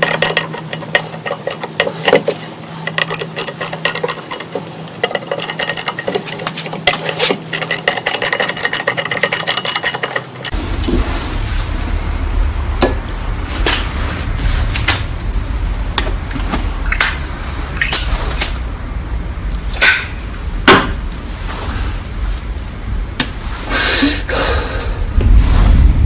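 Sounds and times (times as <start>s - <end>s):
short scraping rush: 10.5s - 22.6s, 23.4s - 26.0s.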